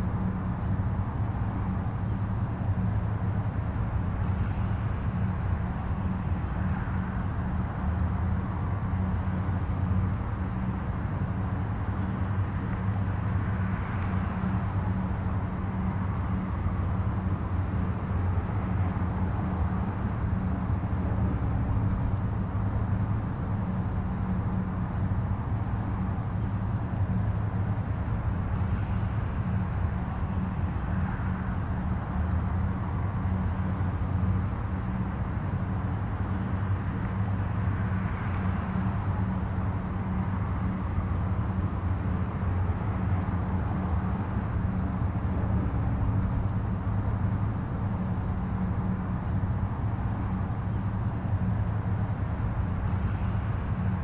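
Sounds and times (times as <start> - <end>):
distant highway traffic rumble: 0.0 - 54.0
vehicles passing: 0.0 - 54.0.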